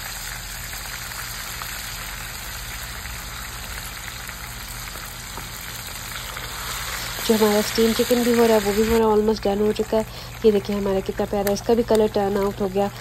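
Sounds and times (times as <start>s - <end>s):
chicken deep-frying in oil: 0.0s - 13.0s
small crackles of frying oil: 0.0s - 13.0s.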